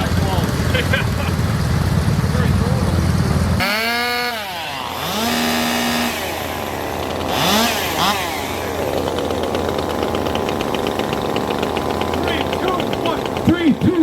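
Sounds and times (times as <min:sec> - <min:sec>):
chainsaw engine revving and idling: 0:00.0 - 0:14.0.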